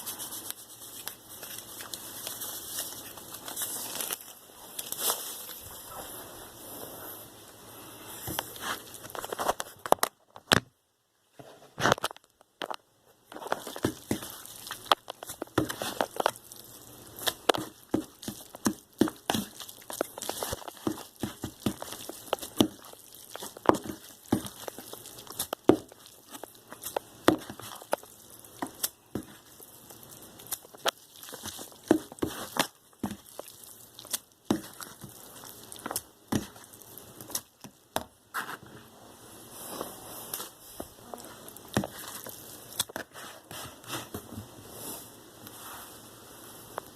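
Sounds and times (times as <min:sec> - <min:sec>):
crinkling: 0:00.0 - 0:06.8, 0:07.4 - 0:10.6, 0:11.5 - 0:38.9, 0:39.6 - 0:44.6.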